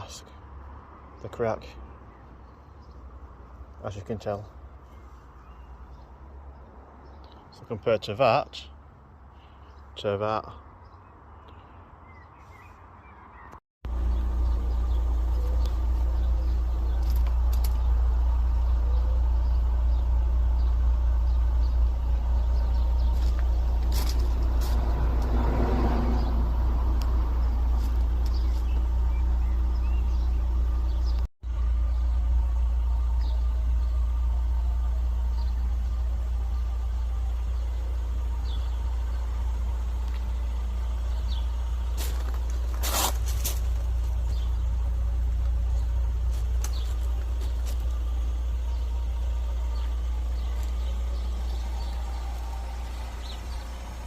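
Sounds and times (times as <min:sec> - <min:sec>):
car engine idling: 0:13.8 - 0:54.0.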